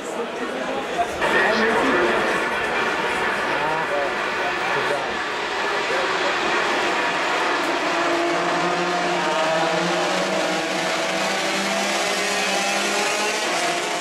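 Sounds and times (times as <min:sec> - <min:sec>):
motorcycle engines at high revs: 0:05.2 - 0:14.0.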